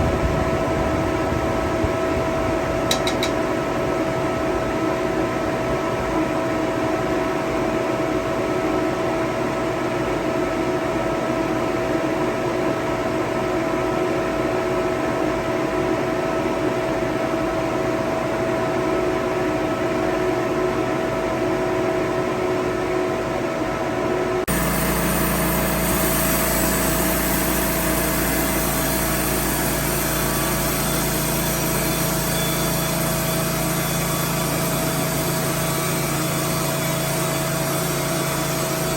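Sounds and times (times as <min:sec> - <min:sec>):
small engine running: 0:24.5 - 0:38.9.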